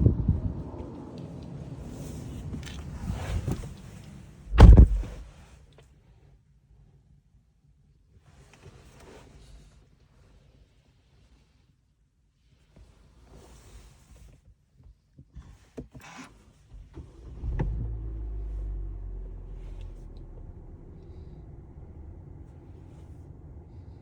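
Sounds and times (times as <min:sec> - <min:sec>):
car engine starting and idling: 0:00.9 - 0:05.3, 0:16.7 - 0:24.0.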